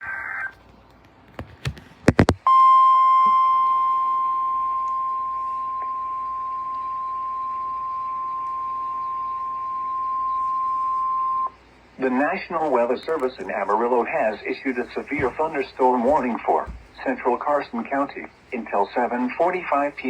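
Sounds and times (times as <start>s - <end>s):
steady warning alarm tone: 2.5s - 11.6s.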